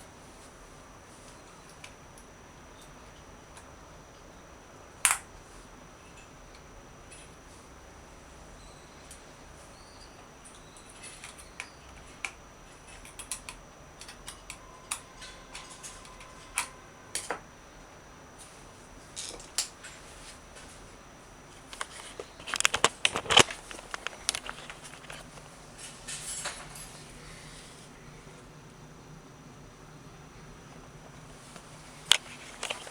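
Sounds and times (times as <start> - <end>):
clicks of small hard parts handled: 21.7 - 25.5, 31.6 - 32.9.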